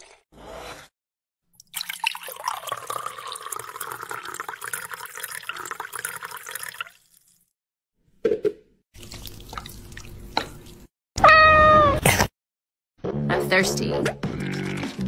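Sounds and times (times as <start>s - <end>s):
liquid pouring into container: 1.5s - 7.5s, 9.0s - 10.9s.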